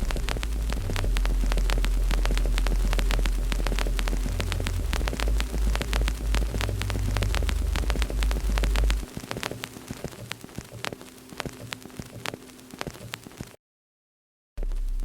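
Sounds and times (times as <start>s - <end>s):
loud deep hum: 0.0s - 9.1s
wood fire crackling: 0.0s - 13.6s.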